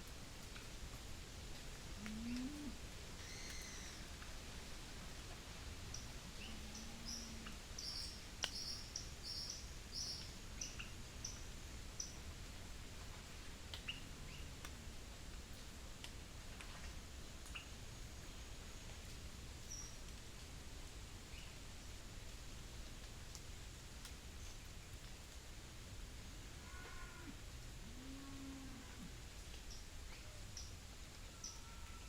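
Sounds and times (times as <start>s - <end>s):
faint clicks: 2.0s - 2.6s.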